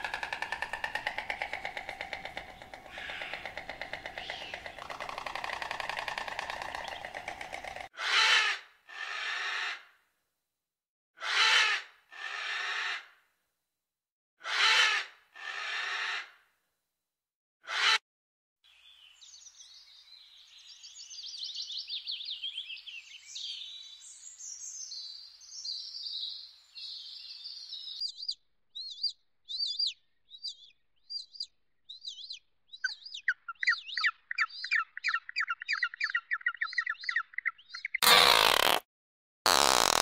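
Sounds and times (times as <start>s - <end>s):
songbirds singing: 0.0s - 7.9s, 18.7s - 38.0s.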